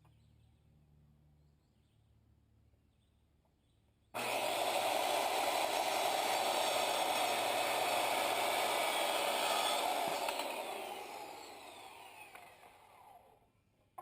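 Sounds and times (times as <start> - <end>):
power saw cutting boards: 4.2 - 13.4.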